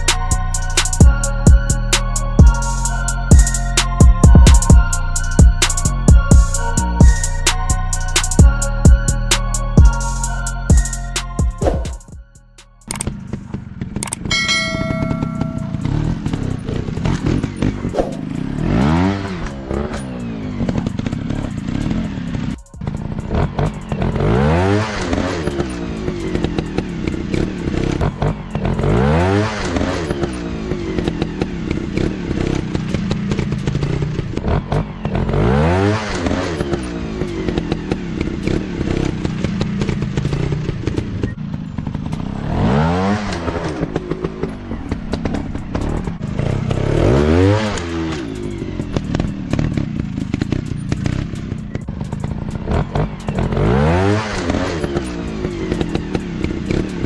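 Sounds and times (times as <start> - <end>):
dirt bike engine revving: 12.9 - 57.0.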